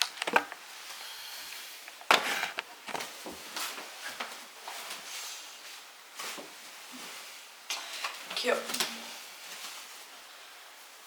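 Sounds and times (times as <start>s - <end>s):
fabric rustling: 2.2s - 11.0s.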